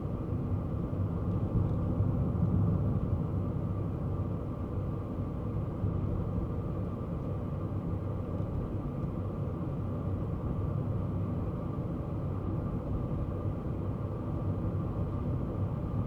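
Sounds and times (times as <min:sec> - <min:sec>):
small car engine and road rumble: 0:00.0 - 0:16.0.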